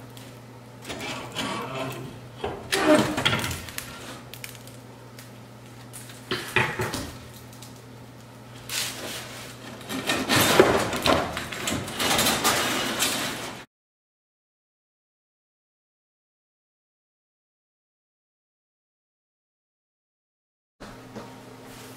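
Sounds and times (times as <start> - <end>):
steady low hum: 0.0 - 12.4
metal parts clanking and scraping: 0.9 - 3.6, 9.6 - 13.6.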